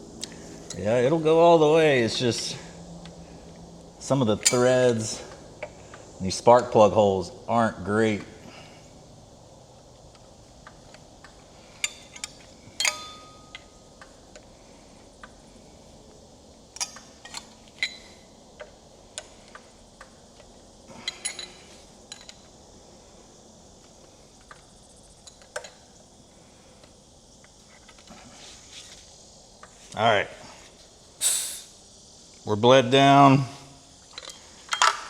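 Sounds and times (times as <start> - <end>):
metallic clinks of hand tools: 11.8 - 13.7, 21.0 - 22.4.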